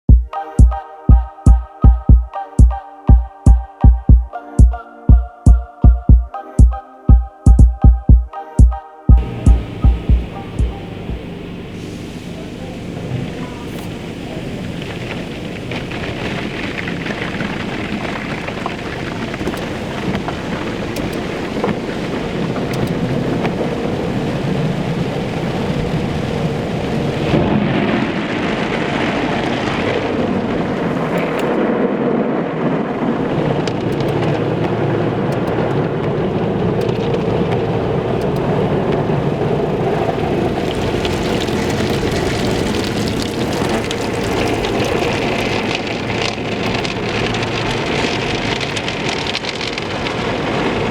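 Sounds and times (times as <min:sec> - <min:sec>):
water spraying on car body: 0:09.2 - 0:31.7, 0:33.2 - 0:50.9
car wash low rumble: 0:09.2 - 0:50.9.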